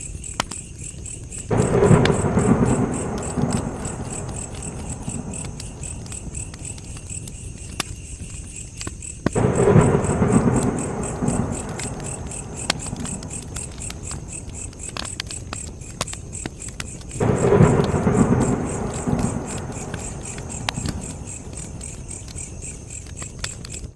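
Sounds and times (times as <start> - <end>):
campfire crackling and popping: 0.0 - 23.9
low rumble: 1.5 - 7.2, 9.4 - 15.0, 17.2 - 22.0.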